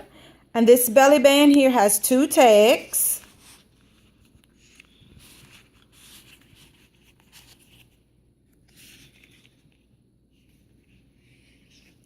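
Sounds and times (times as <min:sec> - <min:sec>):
paper rustling: 0:03.2 - 0:12.0.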